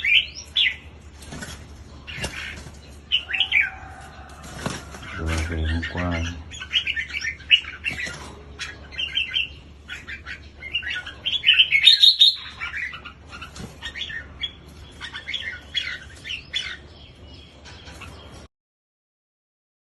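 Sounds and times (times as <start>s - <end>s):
bird chirping song: 0.0s - 18.5s.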